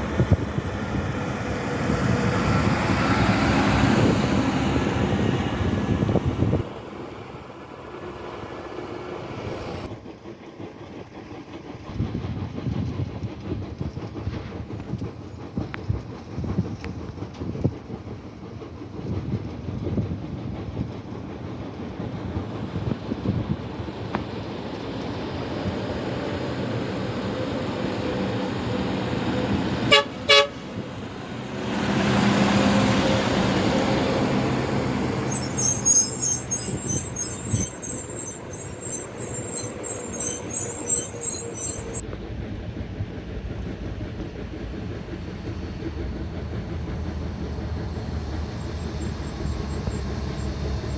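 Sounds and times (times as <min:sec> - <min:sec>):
highway traffic: 0:00.0 - 0:09.9, 0:26.0 - 0:42.0
vehicle horn tooting: 0:29.9 - 0:30.6.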